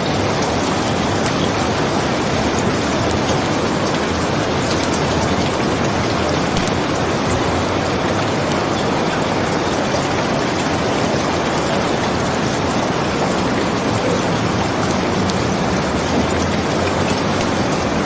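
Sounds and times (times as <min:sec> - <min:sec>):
steady rain falling: 0:00.0 - 0:18.0
wood fire crackling: 0:00.2 - 0:08.6.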